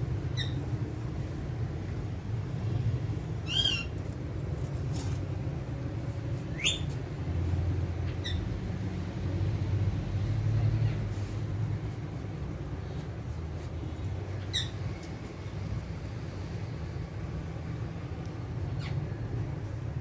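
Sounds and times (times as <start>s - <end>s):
steady low rumble: 0.0s - 20.0s
parrot calls: 3.4s - 4.0s.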